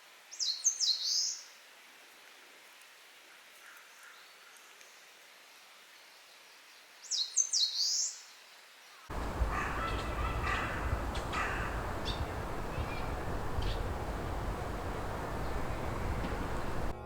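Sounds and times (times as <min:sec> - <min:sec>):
warbler singing: 0:09.1 - 0:17.0.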